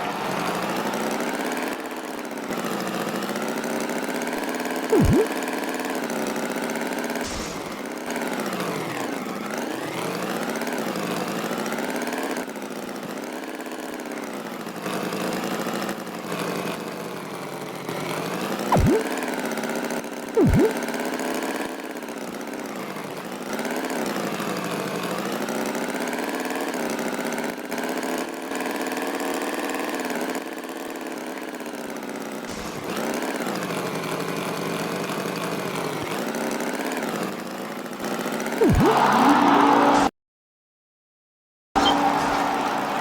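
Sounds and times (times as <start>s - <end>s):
cartoon tractor engine revving: 0.0s - 13.2s, 18.0s - 19.3s, 20.3s - 21.6s, 31.4s - 37.1s, 38.0s - 40.1s, 41.8s - 43.0s
brief sharp sound effects: 5.0s - 5.3s, 18.7s - 19.1s, 20.4s - 20.8s, 38.6s - 40.1s.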